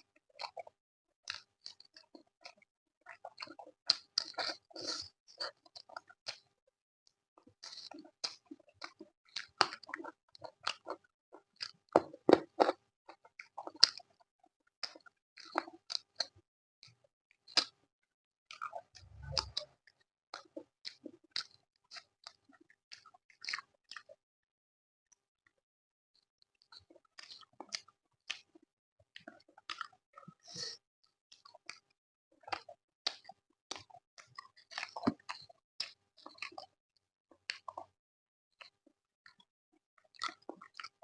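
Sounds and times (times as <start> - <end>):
person chewing food: 1.3 - 6.6, 7.5 - 14.2, 14.8 - 16.3, 17.5 - 17.8, 18.6 - 19.6, 20.9 - 24.2, 26.7 - 28.6, 29.2 - 31.8, 32.4 - 36.7, 37.5 - 37.9, 40.1 - 41.0.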